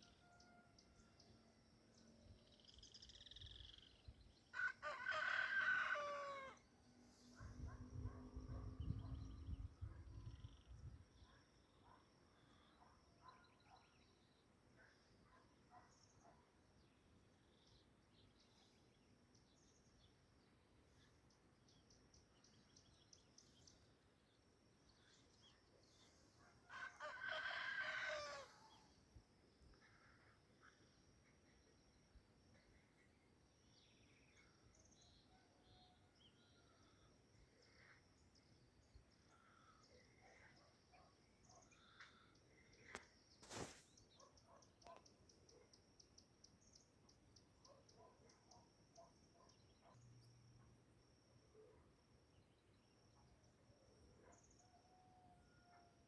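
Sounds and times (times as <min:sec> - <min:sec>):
rooster crowing: 0:04.6 - 0:06.6, 0:26.7 - 0:28.7.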